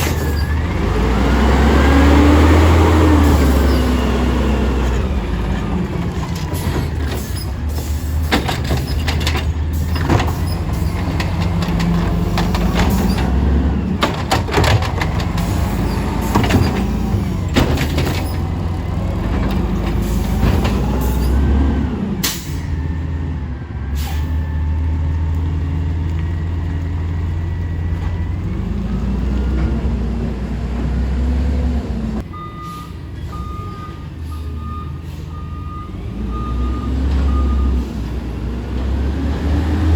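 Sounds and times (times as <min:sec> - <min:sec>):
diesel engine revving: 0:00.0 - 0:39.9
bins banging and clattering: 0:05.3 - 0:21.5
air brake hiss: 0:23.9 - 0:24.4
reversing beeper: 0:32.3 - 0:37.9.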